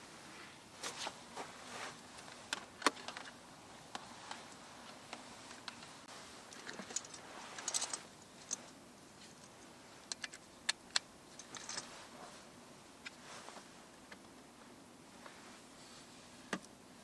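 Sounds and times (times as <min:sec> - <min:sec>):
rustling clicks: 0:01.9 - 0:12.3.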